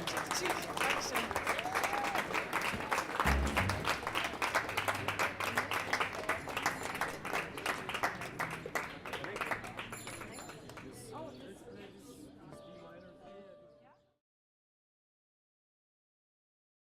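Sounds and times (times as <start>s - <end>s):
audience applause: 0.0s - 10.9s.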